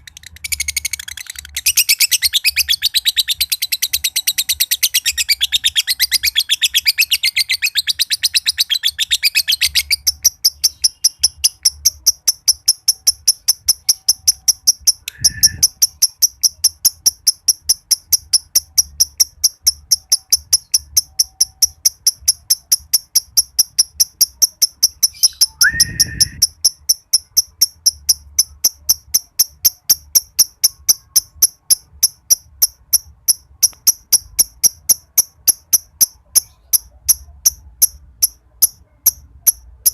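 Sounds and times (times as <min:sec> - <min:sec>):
lovebird chattering trill: 0:00.0 - 0:39.9
lovebird high chirps: 0:00.0 - 0:39.9
lower bird call: 0:14.9 - 0:16.0, 0:25.0 - 0:26.6.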